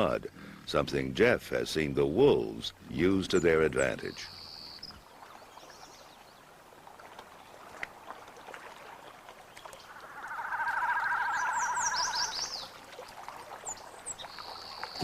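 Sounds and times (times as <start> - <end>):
high falling bird chirps: 9.6 - 12.8
bird trilling: 9.8 - 12.8.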